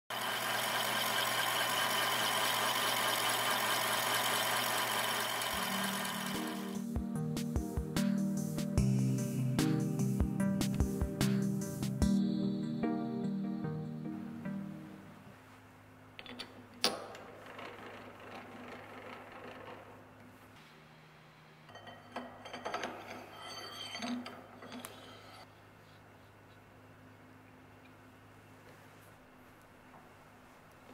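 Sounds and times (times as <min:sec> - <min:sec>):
metal cutter machining hum: 0:00.1 - 0:06.8
music: 0:05.6 - 0:15.4
metal bar scraping and clinking: 0:21.7 - 0:25.5.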